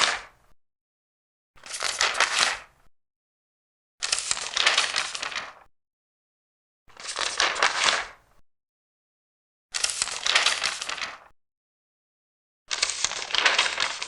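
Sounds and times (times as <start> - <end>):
paper pages turning: 1.6 - 2.7, 4.0 - 5.7, 6.9 - 8.2, 9.8 - 11.3, 12.7 - 14.0.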